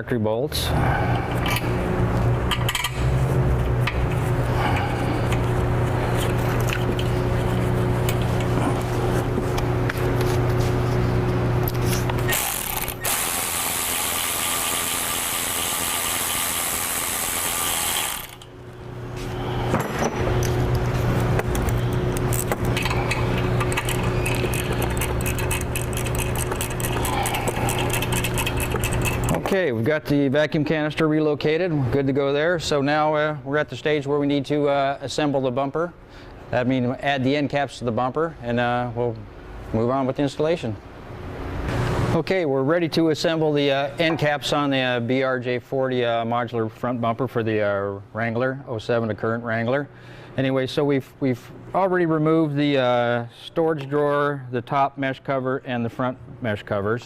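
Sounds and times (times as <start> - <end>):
steady low hum: 0.0 - 53.6
ratchet wrench clicking: 12.3 - 18.5, 23.7 - 29.4
hand tools clicking on bolts: 22.8 - 29.4.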